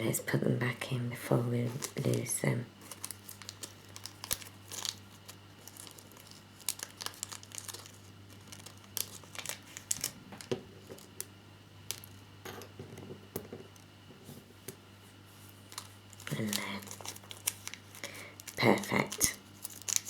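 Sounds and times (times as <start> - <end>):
plastic bag crinkling: 1.6 - 11.3, 15.7 - 20.0.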